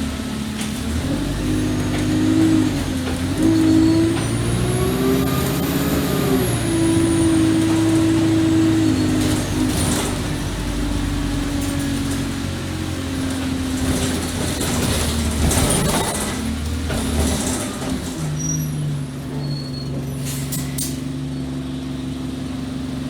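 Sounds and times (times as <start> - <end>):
bus engine running: 0.0 - 23.0.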